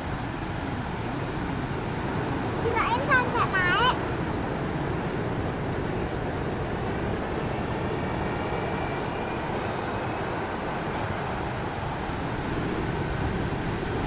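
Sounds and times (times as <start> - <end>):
ocean surf breaking: 0.0 - 14.0.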